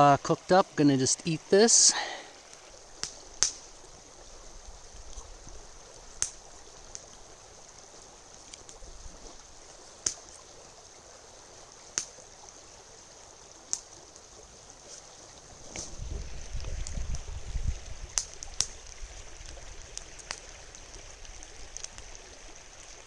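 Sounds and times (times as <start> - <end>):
river rushing: 0.0 - 3.8.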